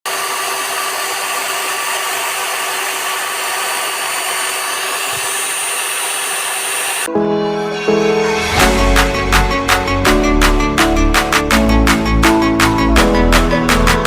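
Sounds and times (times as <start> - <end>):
electric drill running: 0.0 - 7.1.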